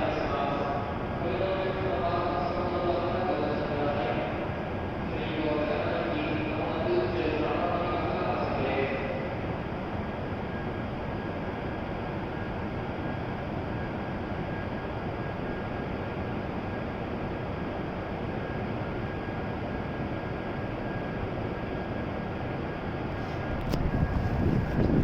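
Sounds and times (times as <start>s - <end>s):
high equipment whine: 0.0s - 25.0s
train humming at platform: 0.0s - 25.0s.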